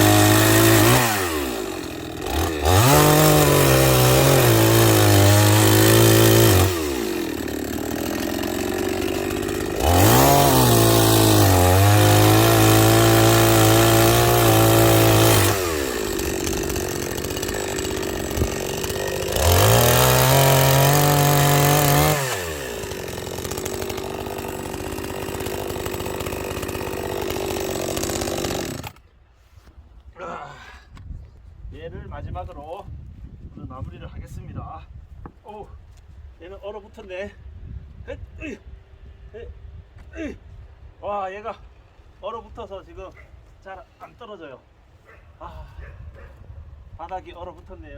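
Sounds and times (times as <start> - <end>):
chainsaw revving: 0.0 - 29.0.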